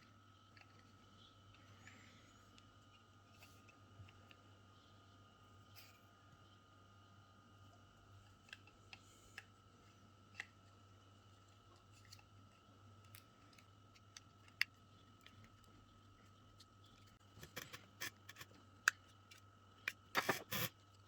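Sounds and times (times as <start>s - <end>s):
faint steady hum: 0.0s - 21.0s
small clicks and taps of parts: 8.2s - 9.5s, 11.4s - 21.0s.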